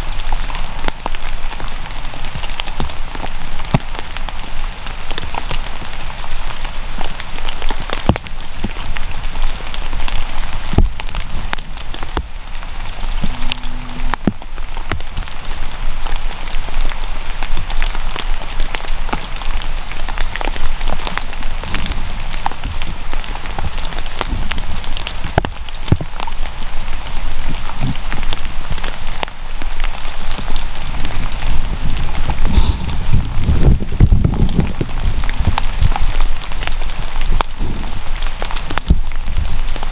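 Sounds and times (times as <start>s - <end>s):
rain with sharp drop hits: 0.0s - 39.9s.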